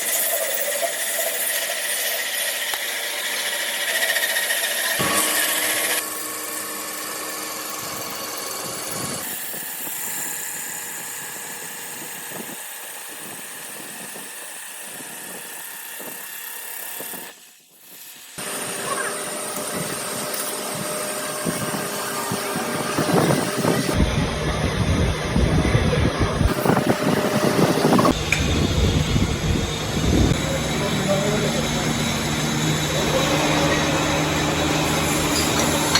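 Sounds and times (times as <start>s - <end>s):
factory machinery running: 0.0s - 9.4s, 18.4s - 35.9s.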